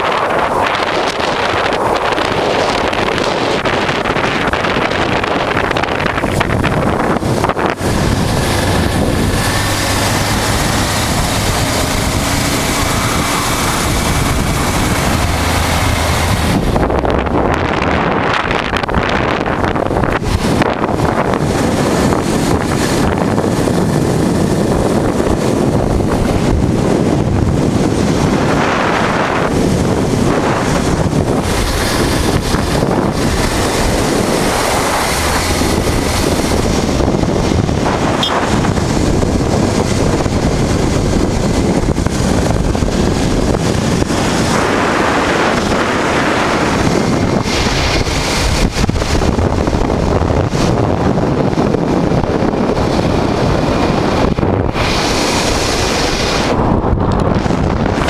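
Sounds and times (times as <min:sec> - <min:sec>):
motorcycle ride rush: 0:00.0 - 0:58.0
wind buffeting microphone: 0:00.0 - 0:58.0.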